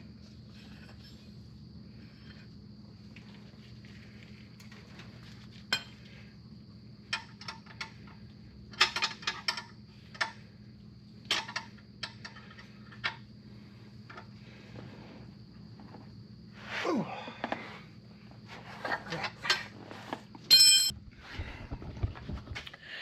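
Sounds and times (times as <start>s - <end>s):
steady low hum: 0.0s - 23.0s
metallic clinks of tools: 20.5s - 20.9s.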